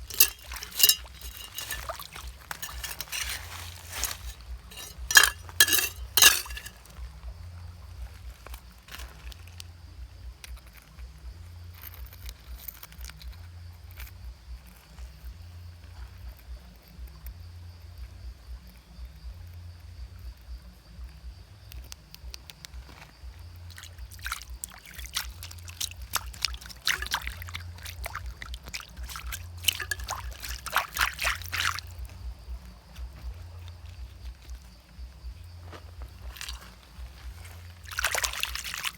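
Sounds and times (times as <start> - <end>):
sharp clicks and scrapes: 0.0 - 6.8
water trickling and sloshing: 0.0 - 7.1, 23.4 - 38.9.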